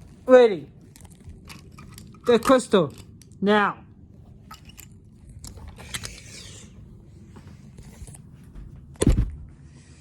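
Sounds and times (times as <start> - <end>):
scraping and rustling handling noise: 0.0 - 3.3
loud thump: 9.0 - 9.5.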